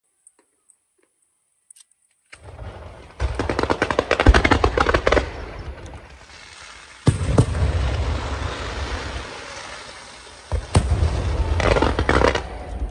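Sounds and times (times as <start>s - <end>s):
fireworks bangs and crackles: 2.4s - 12.9s
heavy firework boom: 7.0s - 12.9s.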